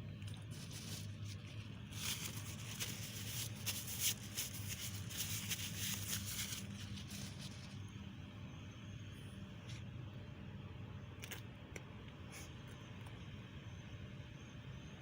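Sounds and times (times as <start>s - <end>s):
low electrical hum: 0.0s - 15.0s
scratchy scraping and rustling: 0.3s - 7.8s.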